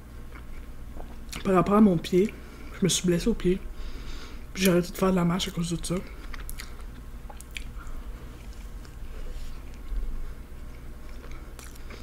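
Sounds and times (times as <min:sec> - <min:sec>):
person chewing: 0:00.2 - 0:01.5, 0:05.4 - 0:12.0.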